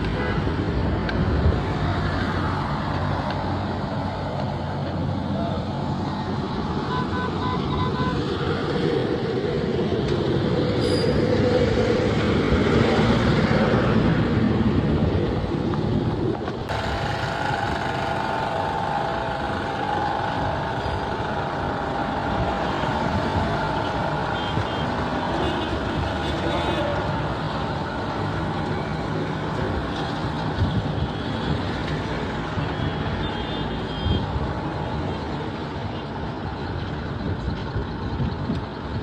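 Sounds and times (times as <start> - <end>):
road traffic noise: 0.0 - 39.0
heavy vehicle passing: 8.3 - 30.9.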